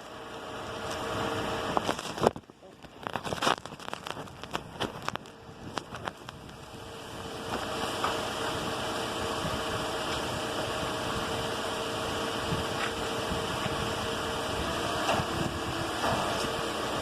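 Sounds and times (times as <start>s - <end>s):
car engine humming: 0.0s - 17.0s
clicks and rustling: 1.8s - 6.6s.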